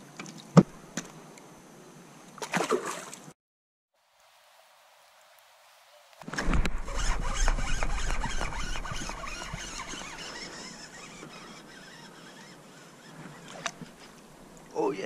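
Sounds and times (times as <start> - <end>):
fishing reel buzzing and clicking: 6.7 - 13.8.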